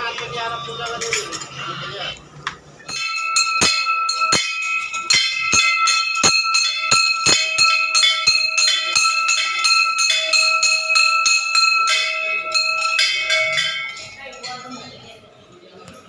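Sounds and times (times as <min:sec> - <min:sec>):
temple bell ringing: 0:02.9 - 0:15.2.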